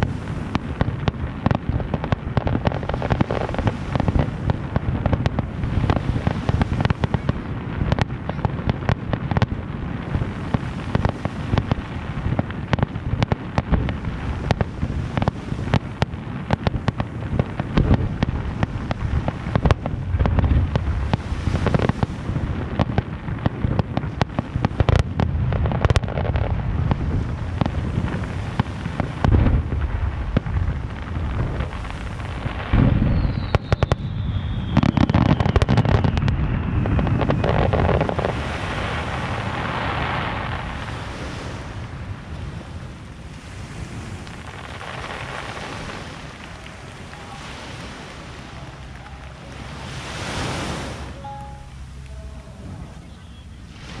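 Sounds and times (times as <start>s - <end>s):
deep firework booms: 0.0s - 51.1s
falling firework whistle: 32.5s - 39.2s.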